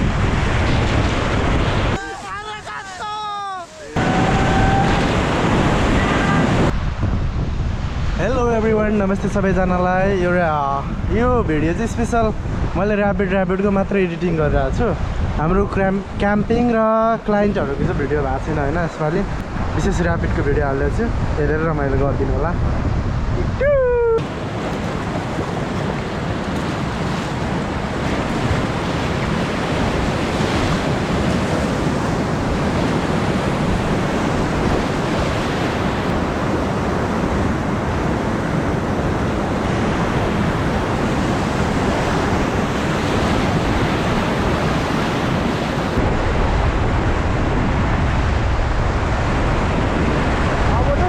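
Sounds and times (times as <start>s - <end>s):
wind buffeting microphone: 0.0s - 2.9s, 3.8s - 51.0s
river rapids rushing: 1.8s - 6.7s, 24.2s - 33.2s.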